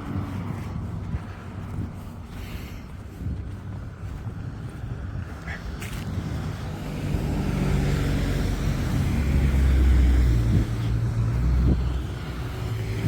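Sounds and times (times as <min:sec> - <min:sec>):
vehicle engine passing: 0:05.6 - 0:13.0.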